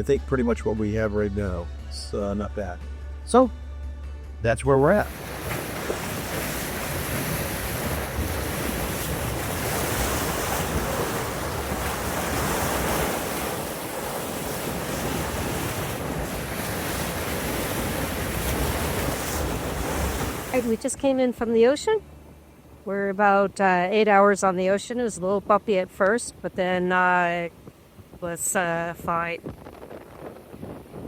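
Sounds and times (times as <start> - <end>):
rush of sea water: 5.0 - 20.9, 27.0 - 31.0
wind buffeting microphone: 5.1 - 21.1, 25.4 - 31.0.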